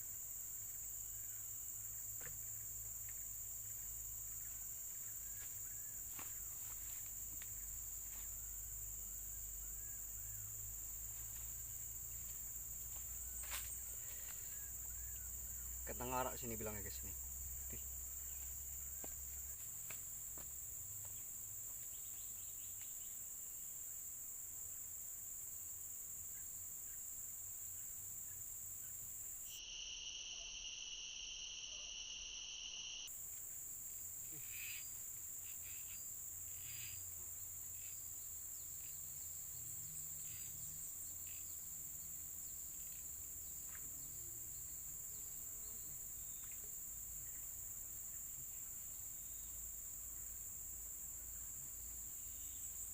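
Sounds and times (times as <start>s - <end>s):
insects shrilling: 29.4s - 33.1s, 34.2s - 37.1s.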